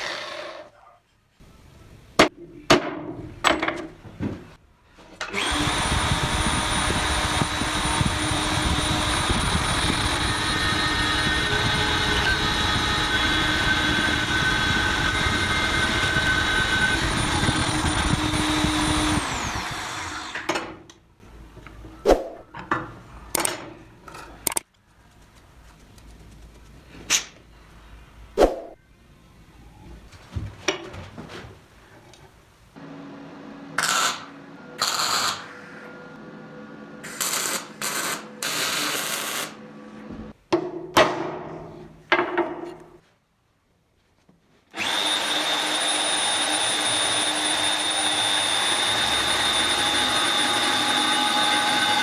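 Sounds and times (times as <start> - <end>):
knocks and clicks of handling tools: 2.2 - 4.5, 40.5 - 43.0
electric power tool whining: 5.3 - 20.5, 44.8 - 52.0.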